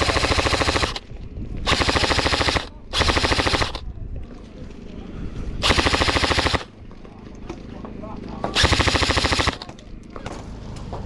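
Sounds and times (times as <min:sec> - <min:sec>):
airsoft gun firing full-auto: 0:00.0 - 0:01.0, 0:01.6 - 0:03.8, 0:05.6 - 0:06.7, 0:08.6 - 0:09.7.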